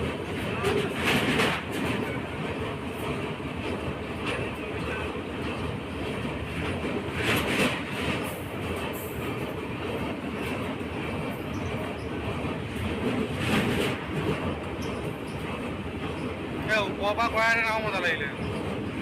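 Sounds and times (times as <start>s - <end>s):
train wheels rumbling on track: 0.0s - 19.0s.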